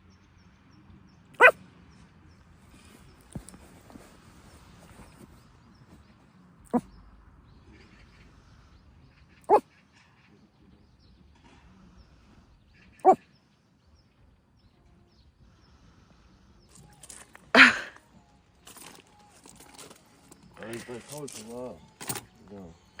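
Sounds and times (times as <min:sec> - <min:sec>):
dog barking: 0:01.4 - 0:01.6.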